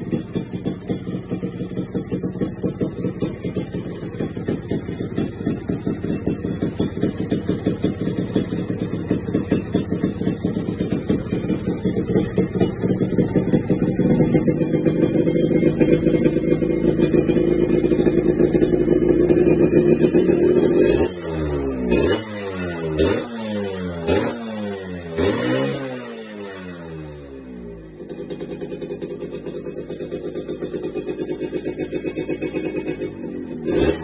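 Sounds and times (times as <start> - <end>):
two-stroke motorcycle engine revving: 0.0 - 34.0.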